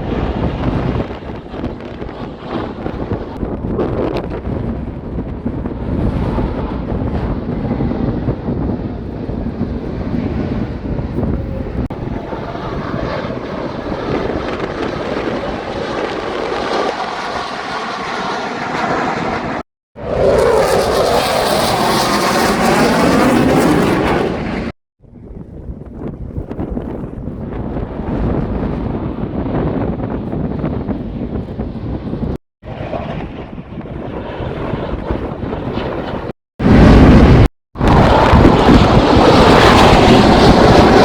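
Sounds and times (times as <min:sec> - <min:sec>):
airplane flying past: 0:05.6 - 0:24.8, 0:28.7 - 0:41.0.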